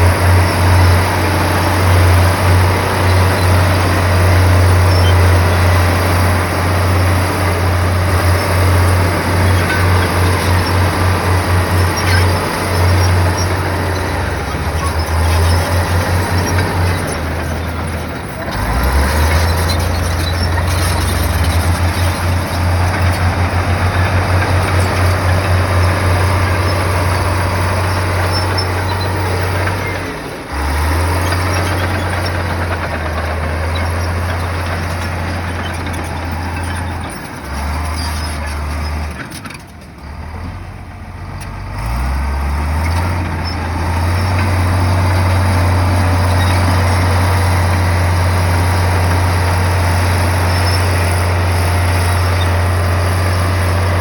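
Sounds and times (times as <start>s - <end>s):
noisy clatter: 0.0s - 30.1s
bulldozer diesel engine: 0.0s - 54.0s.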